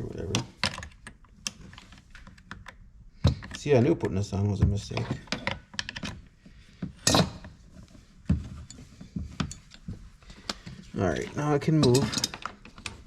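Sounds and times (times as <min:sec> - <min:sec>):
tools and parts clicking and knocking: 0:00.2 - 0:04.2, 0:04.8 - 0:07.6, 0:08.3 - 0:13.0
parts clattering: 0:04.8 - 0:13.0.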